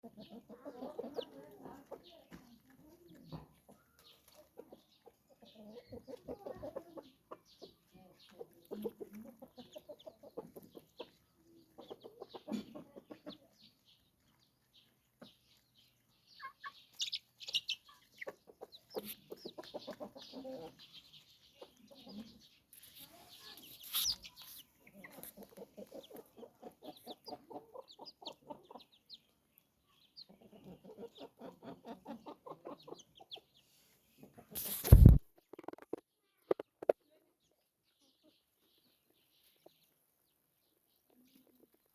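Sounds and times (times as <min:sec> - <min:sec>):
chickens clucking: 0:00.0 - 0:41.9
rustling noise: 0:22.7 - 0:24.6, 0:34.5 - 0:35.3
high chirps: 0:23.7 - 0:24.6.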